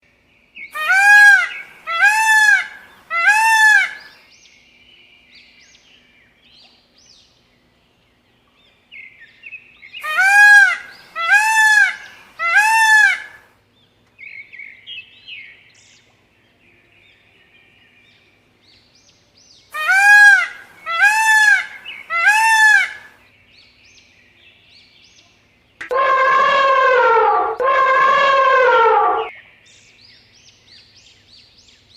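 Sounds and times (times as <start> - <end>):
peacock wailing calls: 0.7 - 4.1, 10.0 - 13.5, 19.7 - 23.2, 25.8 - 29.3.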